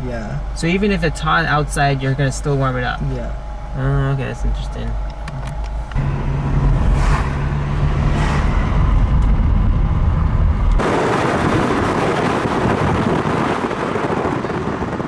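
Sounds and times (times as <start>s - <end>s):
car engine idling: 0.0s - 13.6s
loud even rushing noise: 6.0s - 15.0s.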